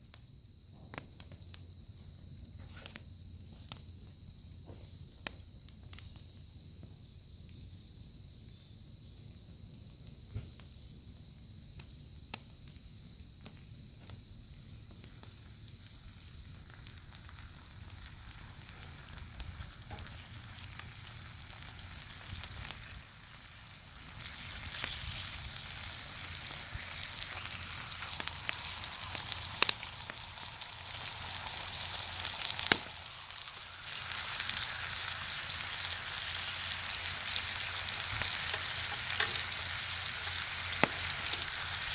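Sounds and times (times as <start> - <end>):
bacon sizzling: 12.9 - 41.9
sharp pops: 24.1 - 34.7, 38.0 - 41.9.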